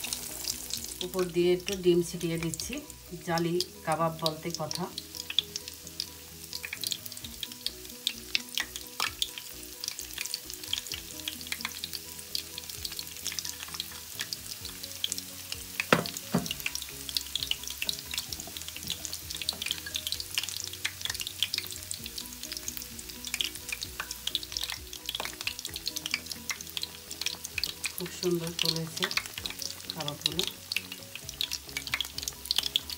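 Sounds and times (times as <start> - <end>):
meat deep-frying in oil: 0.0 - 32.9
loud oil pop: 15.8 - 16.6.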